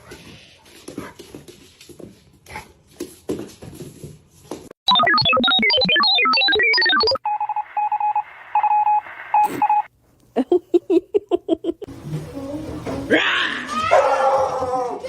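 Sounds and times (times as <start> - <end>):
telephone beeping tones: 4.9 - 9.9.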